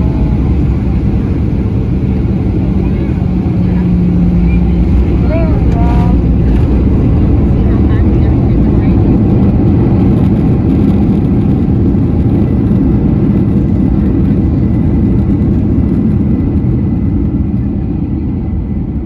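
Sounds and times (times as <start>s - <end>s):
airplane engines and wheels rumbling: 0.0s - 19.0s.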